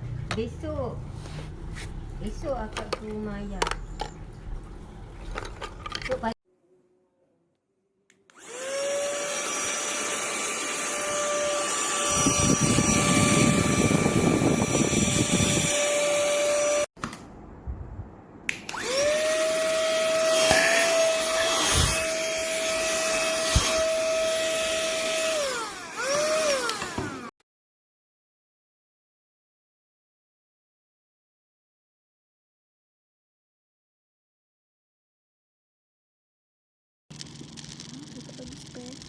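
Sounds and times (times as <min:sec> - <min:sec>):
small vacuum motor whining: 0:08.3 - 0:16.9, 0:18.7 - 0:27.3.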